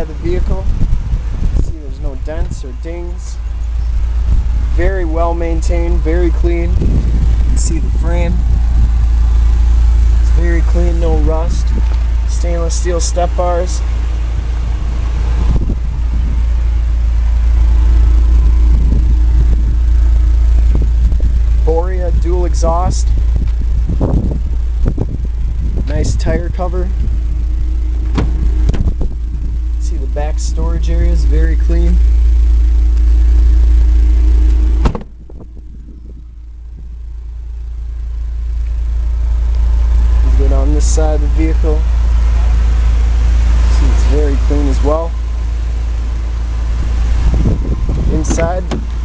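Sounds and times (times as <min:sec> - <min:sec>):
engine idling with deep rumble: 0:00.0 - 0:49.0
vehicle door slamming: 0:27.8 - 0:29.2, 0:34.6 - 0:35.6, 0:47.3 - 0:49.0.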